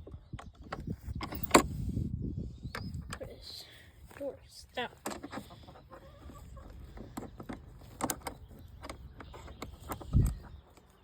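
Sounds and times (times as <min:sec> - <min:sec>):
hens clucking: 0:04.8 - 0:11.0
knocks and clicks: 0:06.6 - 0:10.9.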